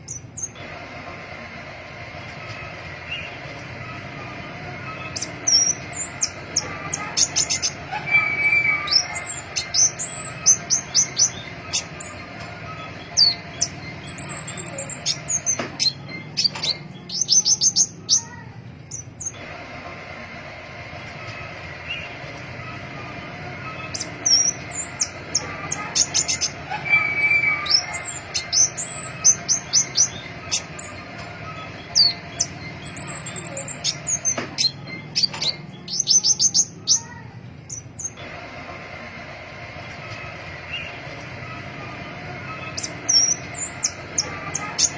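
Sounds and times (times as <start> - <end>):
low background hum: 0.0 - 44.9
bird chirping and ticking: 4.9 - 18.3, 23.7 - 38.2, 42.5 - 44.9.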